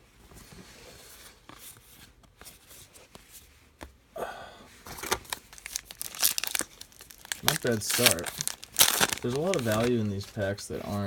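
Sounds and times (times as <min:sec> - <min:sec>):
wrapper crinkling and tearing: 0:04.9 - 0:11.0
cards handled: 0:05.0 - 0:11.0.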